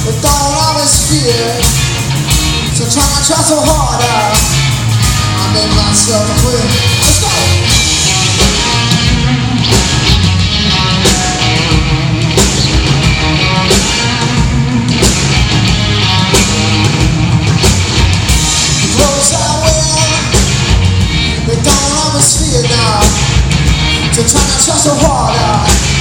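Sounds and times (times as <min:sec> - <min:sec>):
person singing: 0:00.0 - 0:01.8, 0:02.6 - 0:09.9, 0:18.8 - 0:20.6, 0:21.2 - 0:23.4, 0:24.0 - 0:26.0
rock band playing: 0:00.0 - 0:26.0
steady drum beat: 0:00.0 - 0:26.0.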